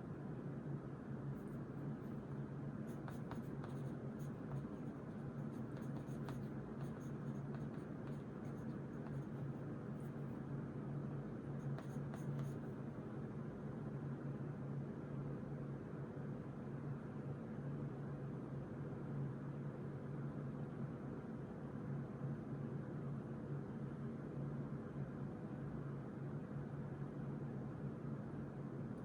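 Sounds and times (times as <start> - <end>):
steady low hum: 1.1 - 13.4
pen scratching on paper: 2.9 - 10.2, 11.6 - 12.7.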